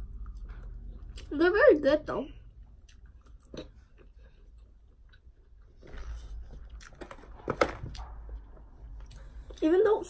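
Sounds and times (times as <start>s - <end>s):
person chewing: 0.0s - 1.3s, 2.5s - 7.2s, 7.9s - 9.6s.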